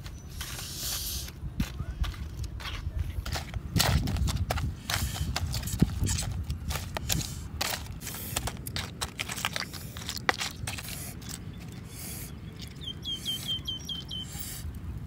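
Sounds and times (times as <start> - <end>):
chewing crunching shell: 3.3 - 14.2
bird chirps: 11.5 - 14.6.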